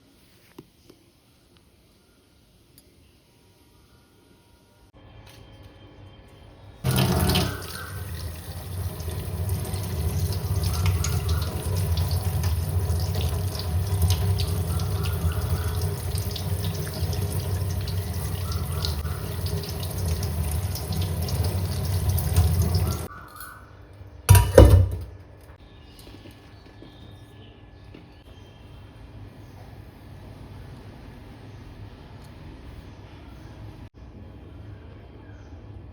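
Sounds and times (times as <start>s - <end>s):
tap running water into sink: 6.9s - 23.1s.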